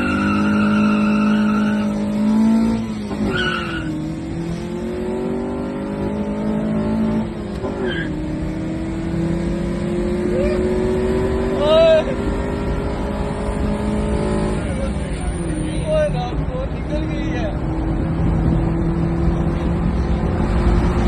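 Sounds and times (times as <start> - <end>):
car engine accelerating: 0.0 - 16.0, 17.4 - 21.0.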